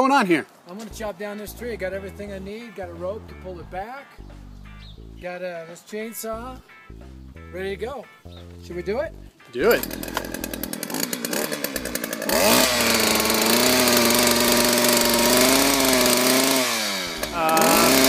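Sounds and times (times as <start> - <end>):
chainsaw engine revving: 9.6 - 18.0.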